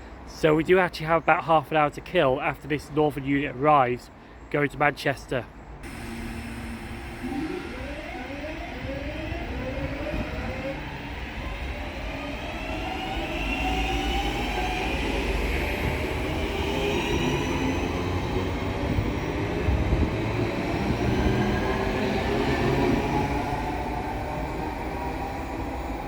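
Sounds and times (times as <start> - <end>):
train traction motors whining: 5.8 - 26.0
wheels rumbling on rail: 5.8 - 26.0.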